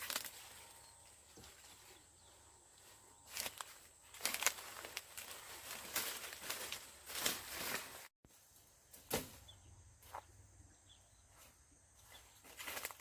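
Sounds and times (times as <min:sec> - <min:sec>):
dry rustling and crunching: 0:00.0 - 0:02.0, 0:02.8 - 0:08.1, 0:12.4 - 0:13.0.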